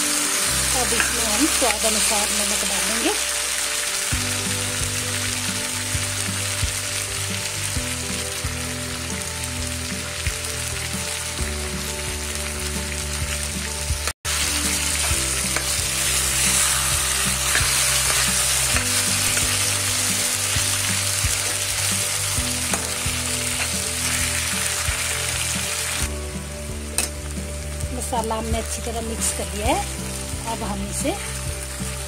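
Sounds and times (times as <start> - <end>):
food sizzling in hot oil: 0.0 - 32.0
steel spoon scraping a pan: 14.8 - 20.7.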